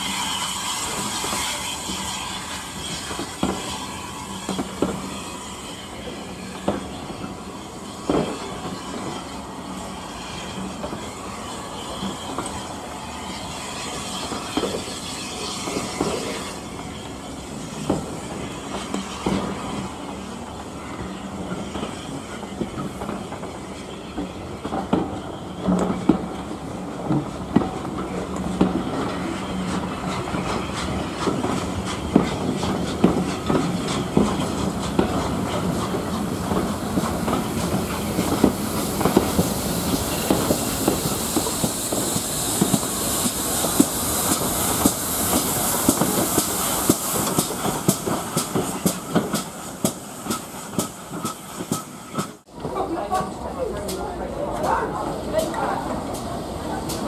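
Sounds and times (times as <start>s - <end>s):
steam hissing: 0.0s - 57.0s
train wheels clicking over rail joints: 24.2s - 57.0s.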